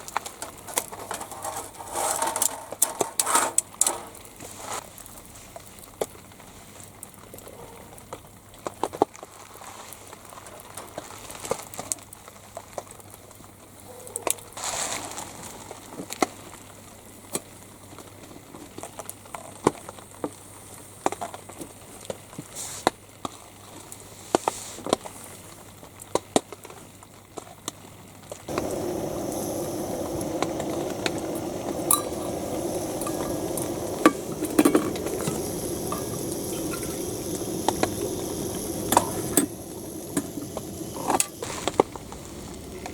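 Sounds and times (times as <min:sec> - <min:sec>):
watery bubbling and hissing: 0:28.5 - 0:42.9.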